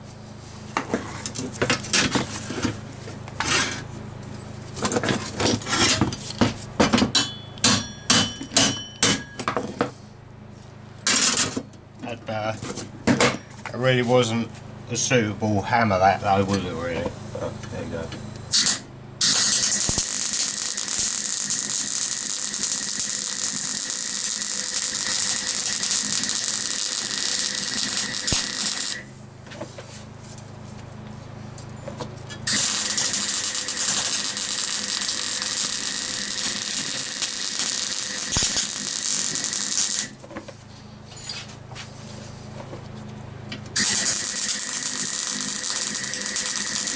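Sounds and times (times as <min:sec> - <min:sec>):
generator humming: 0:09.4 - 0:46.9
welder arc crackling: 0:17.6 - 0:29.1, 0:32.5 - 0:40.2, 0:43.8 - 0:46.9.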